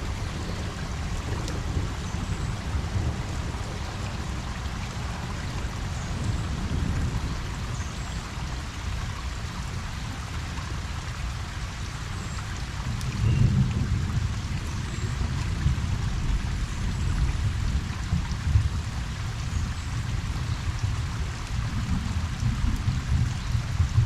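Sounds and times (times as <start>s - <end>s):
rain falling on pond water: 0.0s - 24.0s.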